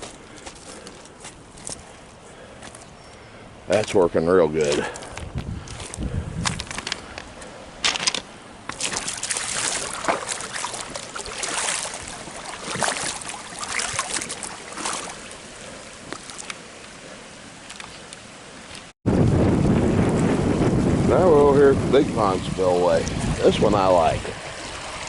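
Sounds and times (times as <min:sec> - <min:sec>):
water rushing down spillway: 0:08.8 - 0:17.6.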